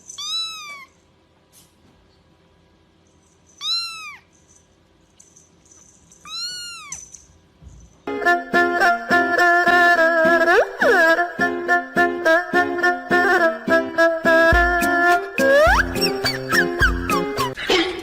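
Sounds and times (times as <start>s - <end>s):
kitten meowing: 0.2s - 0.9s, 3.6s - 4.3s, 6.2s - 7.0s
music: 8.1s - 18.0s.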